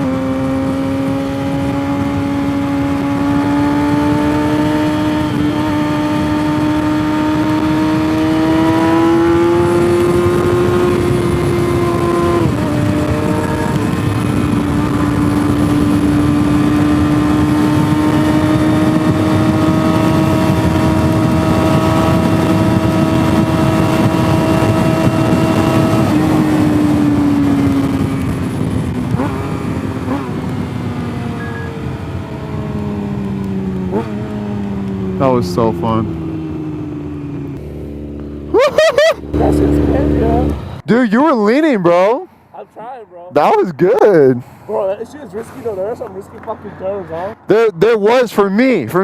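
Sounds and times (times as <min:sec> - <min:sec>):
motorcycle engine: 0:00.0 - 0:48.2
wind rushing: 0:00.3 - 0:33.8.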